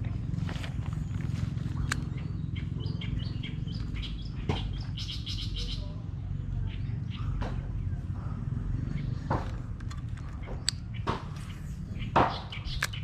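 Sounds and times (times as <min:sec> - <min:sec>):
birds chirping: 0:00.0 - 0:13.0
steady low rumble: 0:00.0 - 0:13.0
sharp knocks: 0:10.4 - 0:11.4, 0:12.1 - 0:12.6.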